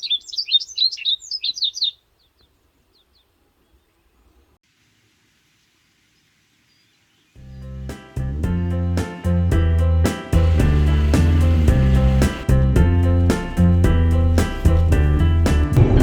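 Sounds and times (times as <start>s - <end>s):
songbird chirping: 0.0s - 4.6s, 5.4s - 7.9s.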